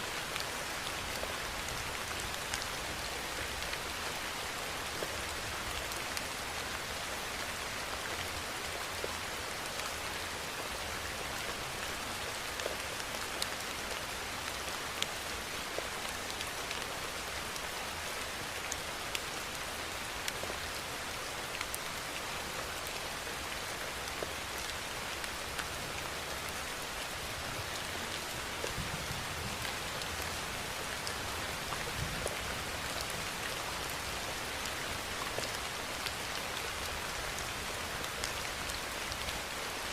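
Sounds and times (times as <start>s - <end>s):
steady rainfall: 0.0s - 39.9s
raindrops ticking on surface: 11.4s - 39.9s.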